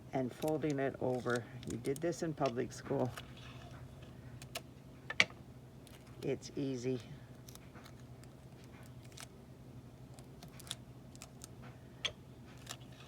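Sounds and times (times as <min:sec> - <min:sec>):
steady low hum: 0:00.0 - 0:13.0
paper and tape rustling: 0:00.3 - 0:03.8, 0:10.2 - 0:11.6.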